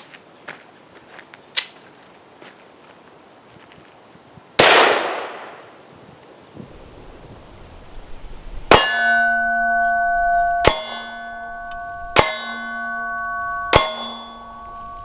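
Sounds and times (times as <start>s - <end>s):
pistol shots: 4.6s - 5.7s
steel target ringing: 8.7s - 15.0s.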